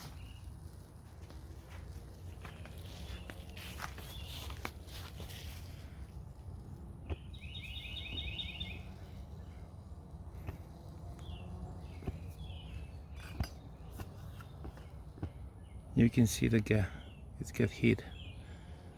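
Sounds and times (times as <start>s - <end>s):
small bird trilling and chirping: 2.3s - 5.0s, 7.0s - 9.9s, 11.1s - 16.2s.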